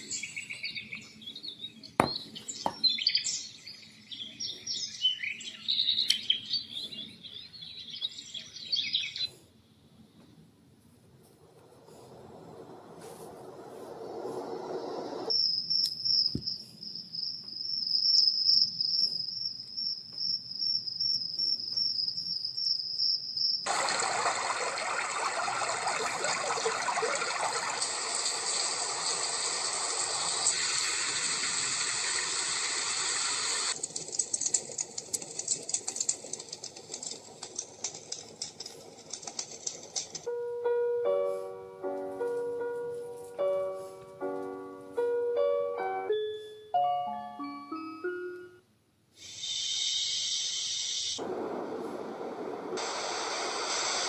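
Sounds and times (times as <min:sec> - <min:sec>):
full even hiss: 0:11.2 - 0:15.3, 0:23.7 - 0:40.1, 0:49.2 - 0:54.0
thin crackling noise: 0:23.7 - 0:40.3.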